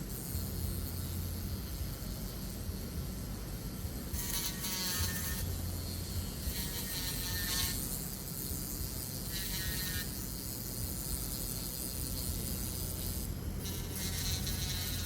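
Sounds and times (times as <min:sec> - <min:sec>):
rotary polishing tool humming: 0:00.0 - 0:15.0
polishing tool whirring hiss: 0:03.9 - 0:15.0.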